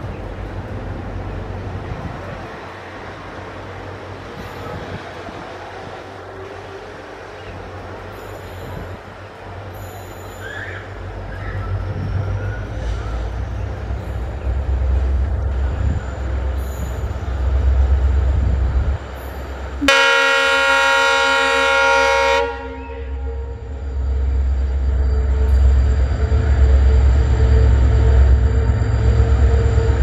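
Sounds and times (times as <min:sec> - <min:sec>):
diesel locomotive engines humming: 0:00.0 - 0:30.0
train horn blast: 0:19.8 - 0:23.8.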